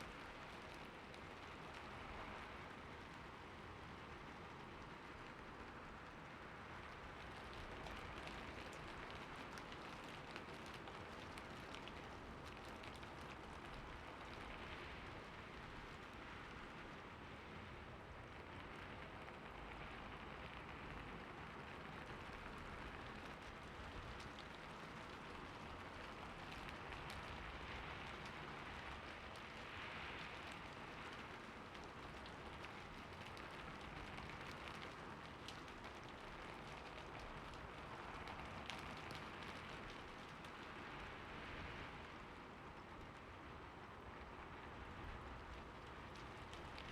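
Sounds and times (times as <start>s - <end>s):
steady rain hiss: 0.0s - 46.9s
raindrops ticking: 6.9s - 16.0s, 21.6s - 41.2s, 44.8s - 46.9s.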